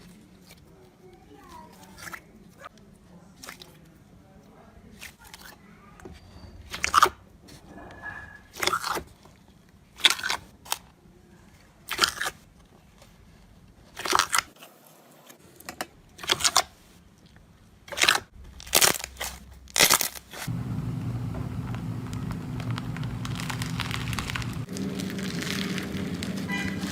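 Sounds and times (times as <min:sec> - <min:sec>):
slime squishing: 0:00.0 - 0:06.0, 0:21.2 - 0:26.9.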